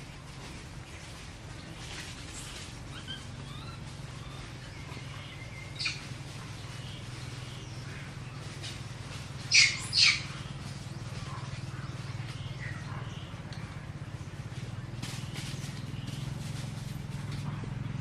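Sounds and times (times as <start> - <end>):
steady low hum: 0.0 - 18.0
baby monkey squealing: 2.9 - 4.4, 9.5 - 10.4.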